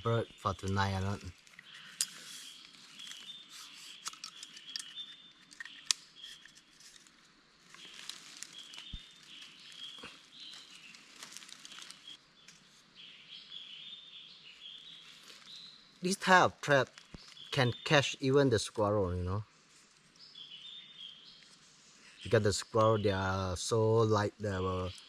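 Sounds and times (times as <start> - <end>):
high chirping calls: 0.0 - 6.7
rustling leaves and twigs: 0.0 - 13.6, 14.4 - 23.3
sharp clicks of bamboo trap: 4.0 - 7.0.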